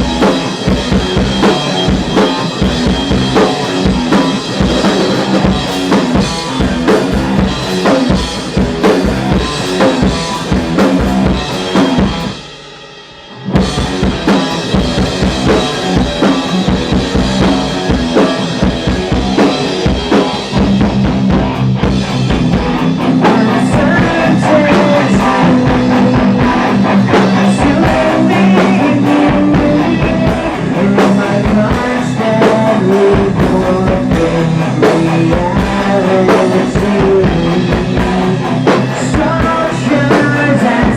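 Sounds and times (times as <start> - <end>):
drum kit: 0.0 - 40.9
guitar playing: 13.4 - 31.2.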